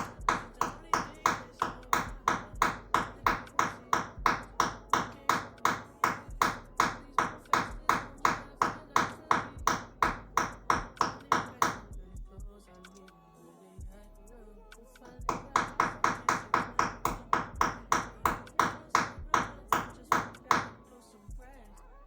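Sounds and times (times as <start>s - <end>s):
nail being hammered: 0.0s - 11.9s, 15.0s - 20.8s.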